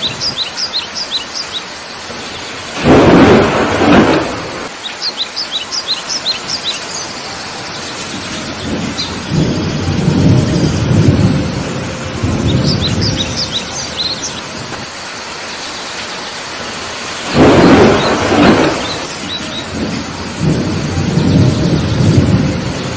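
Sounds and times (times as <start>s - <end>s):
birds chirping: 0.0s - 11.6s, 12.4s - 22.9s
heavy rain: 0.0s - 22.9s
thunder rumbling: 2.1s - 4.7s, 7.5s - 14.9s, 17.2s - 22.9s
sharp thunderclap: 2.7s - 4.7s, 8.1s - 13.2s, 17.2s - 22.9s.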